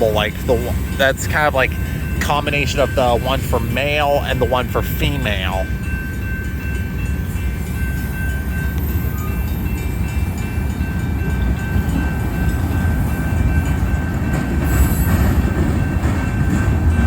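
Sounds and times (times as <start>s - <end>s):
freight train rumbling past: 0.0s - 17.0s.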